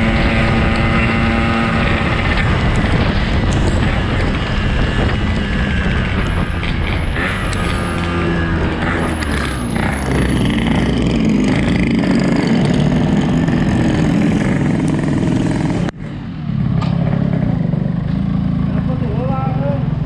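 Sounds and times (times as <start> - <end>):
two-stroke motorcycle engine running: 0.0 - 16.0
wind and road noise: 0.0 - 20.0.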